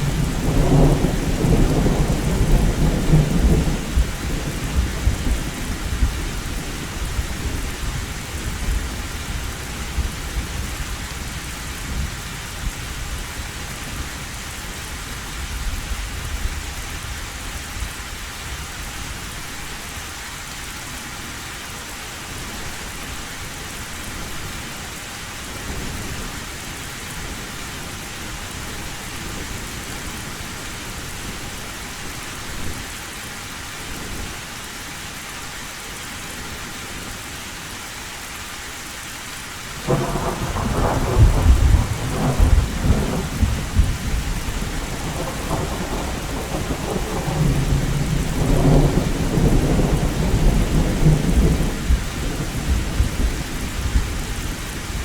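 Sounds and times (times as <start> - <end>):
thunder rumbling: 0.0 - 10.7, 39.8 - 55.0
heavy rain on a tin roof: 0.0 - 55.0.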